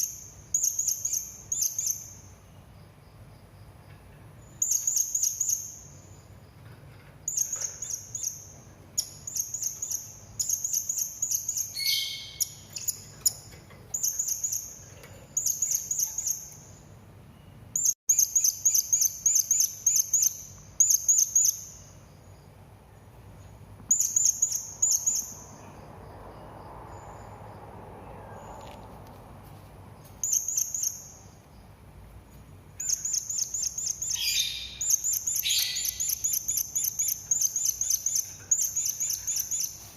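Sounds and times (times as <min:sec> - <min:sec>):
parrot shrill chirps: 0:11.6 - 0:13.0, 0:32.8 - 0:39.8.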